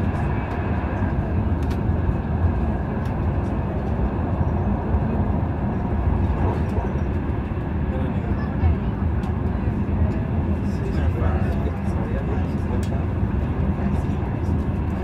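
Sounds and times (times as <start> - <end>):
train rumbling at speed: 0.0 - 15.0.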